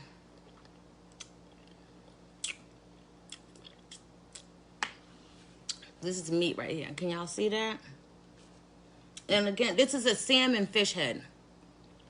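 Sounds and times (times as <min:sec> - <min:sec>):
wet mouth smacks chewing: 0:00.4 - 0:01.8, 0:02.4 - 0:04.5.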